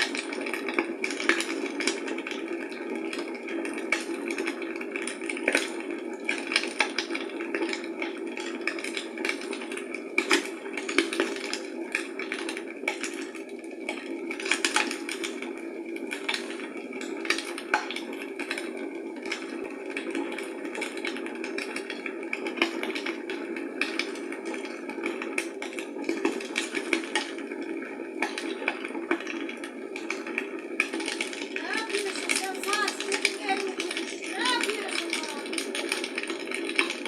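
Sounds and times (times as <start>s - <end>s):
fire crackling and popping: 0.0s - 37.0s.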